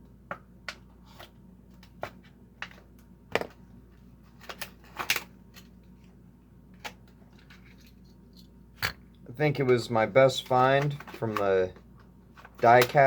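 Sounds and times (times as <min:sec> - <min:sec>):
toy car and packaging handled: 0:06.8 - 0:08.5, 0:09.6 - 0:13.0.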